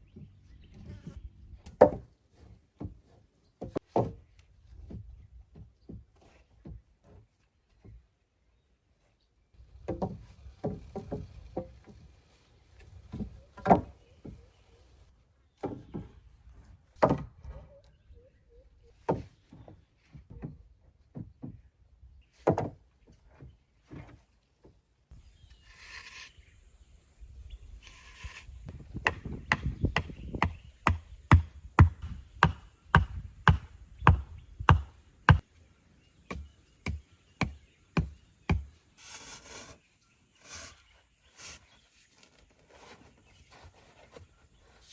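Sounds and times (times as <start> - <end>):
hand tool chopping wood: 29.0 - 35.4, 36.3 - 39.6.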